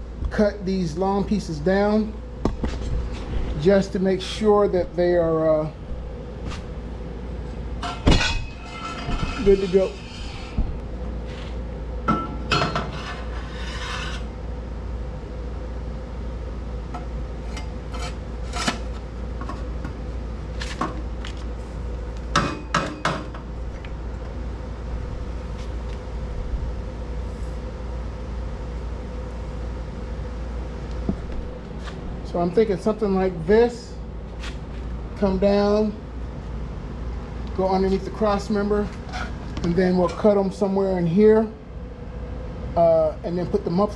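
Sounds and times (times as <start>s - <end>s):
steady low hum: 0.0s - 43.9s
metal pipes clinking and scraping: 7.8s - 10.6s.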